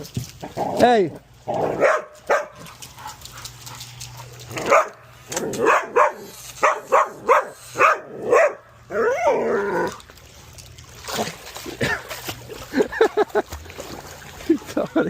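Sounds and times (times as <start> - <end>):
dog barking: 1.7 - 2.6, 4.6 - 5.0, 5.6 - 8.7.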